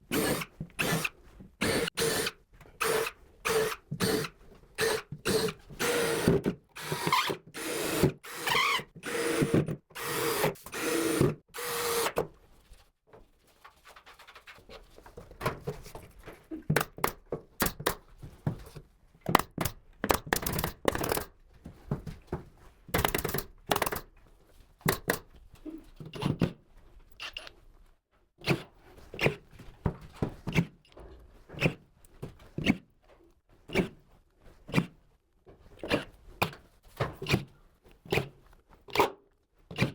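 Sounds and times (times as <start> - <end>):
knocks and clicks on wood: 24.8 - 25.3.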